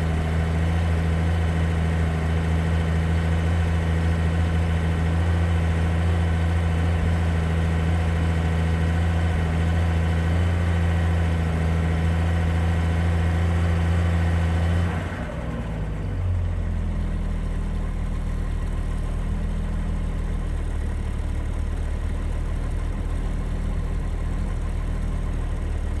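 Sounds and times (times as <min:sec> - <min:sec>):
engine idling: 0:14.3 - 0:26.0.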